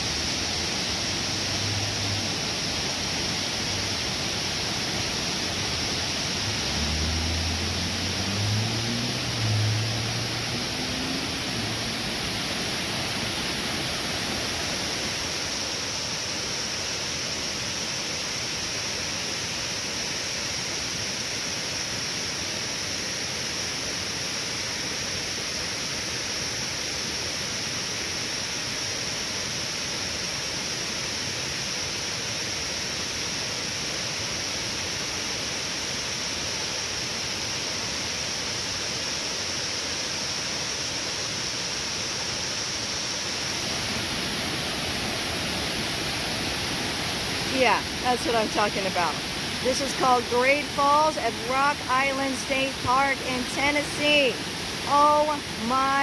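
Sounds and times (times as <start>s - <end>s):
waterfall rushing: 0.0s - 23.8s, 36.9s - 56.0s.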